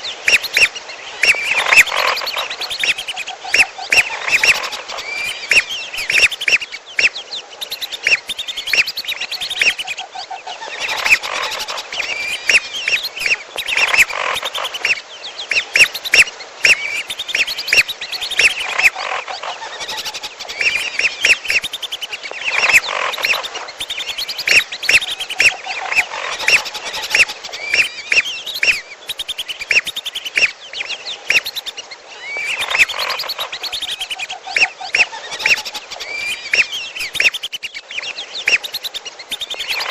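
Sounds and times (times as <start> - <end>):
whistling duck calls: 0.2 - 10.1, 10.7 - 19.2, 19.8 - 37.7, 38.4 - 39.9
lower pulsed bird call: 26.4 - 37.7.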